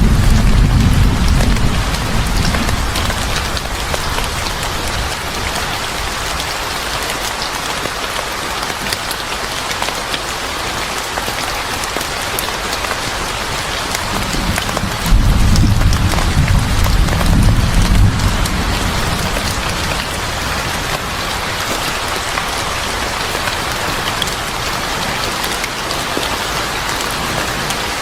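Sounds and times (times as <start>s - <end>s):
low rumble: 0.0s - 3.6s
rain falling: 0.0s - 28.0s.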